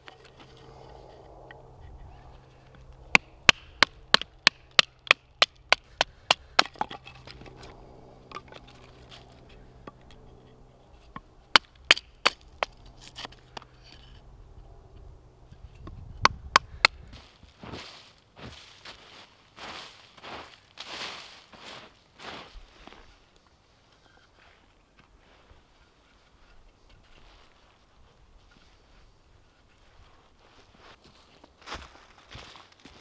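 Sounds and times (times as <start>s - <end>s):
wood being chopped: 3.1s - 7.6s, 11.2s - 13.7s, 15.8s - 17.0s.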